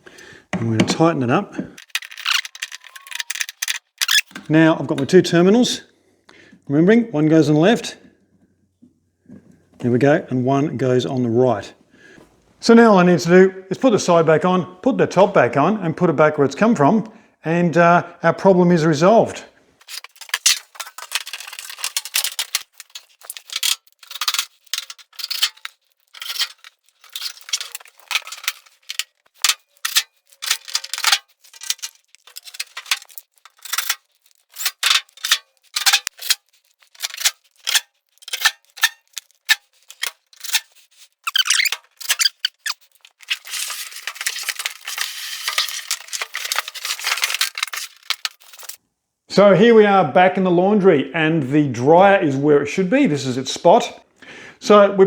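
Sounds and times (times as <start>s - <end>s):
sheet-metal panels clattering: 19.8s - 48.8s.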